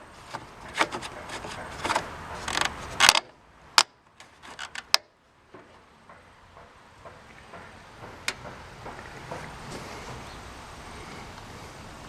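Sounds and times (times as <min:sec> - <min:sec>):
rubbing and scraping: 0:00.0 - 0:03.3, 0:04.2 - 0:05.0
sharp clicks and knocks: 0:00.3 - 0:10.3.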